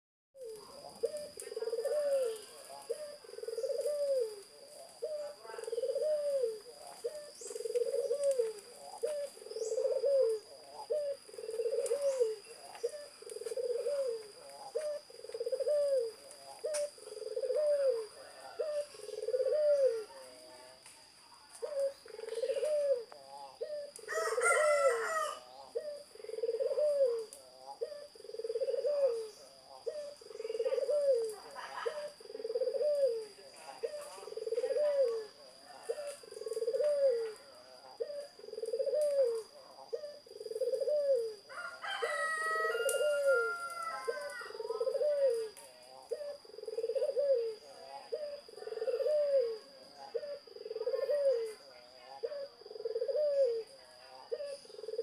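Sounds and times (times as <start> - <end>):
dove cooing: 0.4 - 55.0
rooster crowing: 24.0 - 25.5, 41.4 - 45.3.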